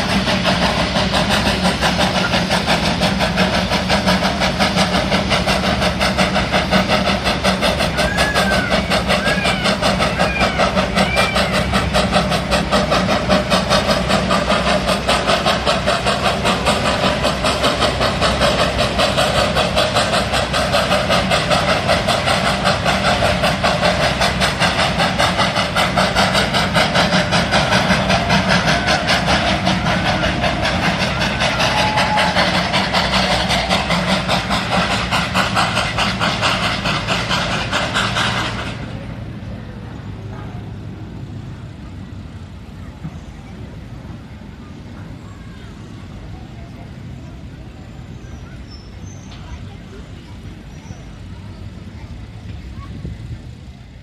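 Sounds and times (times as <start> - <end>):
small locomotive running: 0.0 - 54.0.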